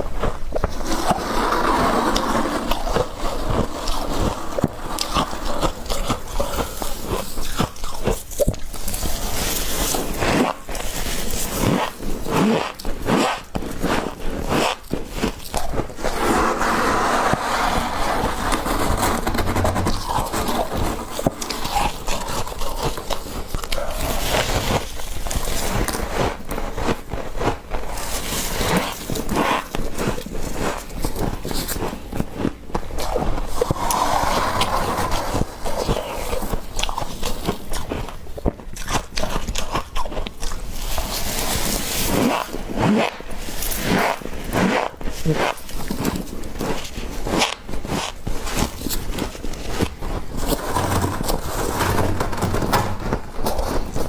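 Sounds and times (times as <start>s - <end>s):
crunchy frost scraping: 8.9s - 26.3s, 32.9s - 37.5s, 46.8s - 54.0s.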